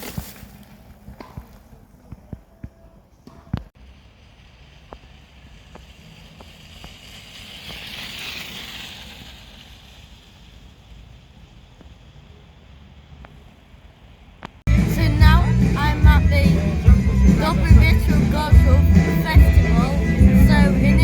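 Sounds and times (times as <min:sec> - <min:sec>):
hiss: 0:03.8 - 0:13.3.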